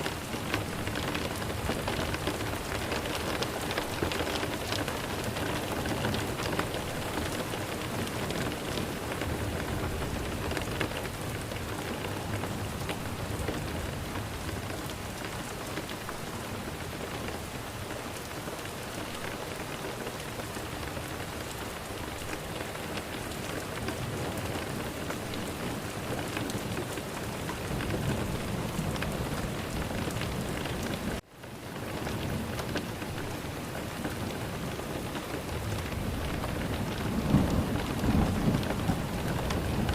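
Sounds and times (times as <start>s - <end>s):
heavy rain falling: 0.0s - 39.9s
low rumble of thunder: 35.4s - 39.9s.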